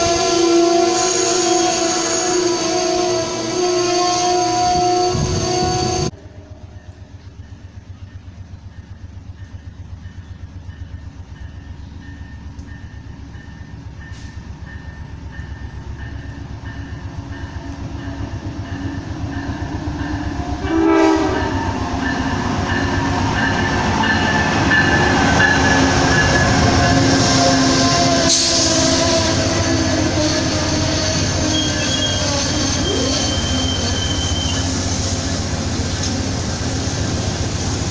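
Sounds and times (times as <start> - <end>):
train horn blast: 0.0 - 7.1, 19.6 - 35.3
train wheels rumbling on rail: 0.0 - 37.9.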